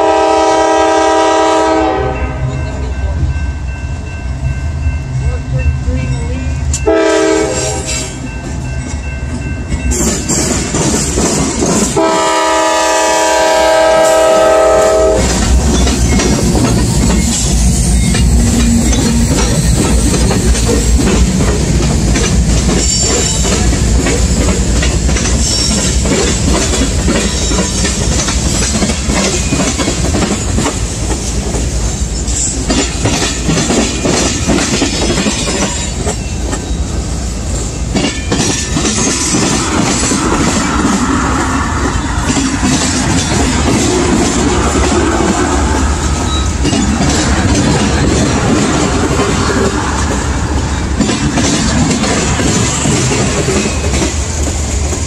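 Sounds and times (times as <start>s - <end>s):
train horn blast: 0.0s - 2.8s, 6.8s - 8.2s, 12.0s - 15.4s
wheels clacking over rail joints: 13.9s - 31.7s, 32.3s - 36.8s, 37.8s - 55.0s
freight cars rumbling: 13.9s - 55.0s.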